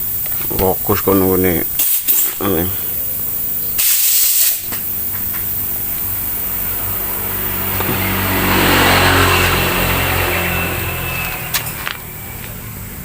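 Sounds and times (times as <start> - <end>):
steady low hum: 0.0 - 13.0
passing vehicle engine: 4.8 - 13.0.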